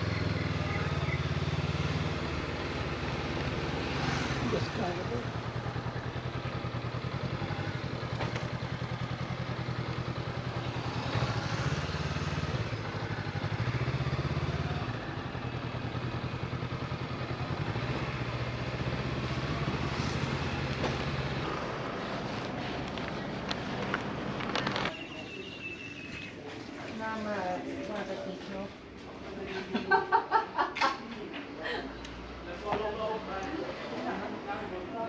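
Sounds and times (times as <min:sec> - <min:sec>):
motorcycle engine running: 0:00.0 - 0:26.3.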